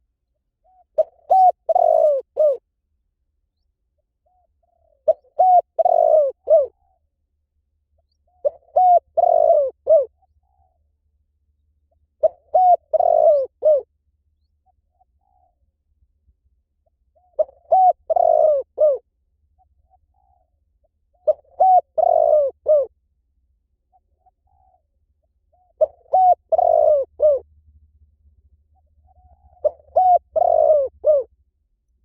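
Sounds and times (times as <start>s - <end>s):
dove cooing: 0.6s - 2.6s, 4.2s - 7.0s, 8.2s - 10.8s, 12.2s - 13.9s, 14.6s - 15.6s, 17.1s - 22.9s, 23.9s - 24.9s, 25.5s - 27.4s, 28.8s - 31.3s.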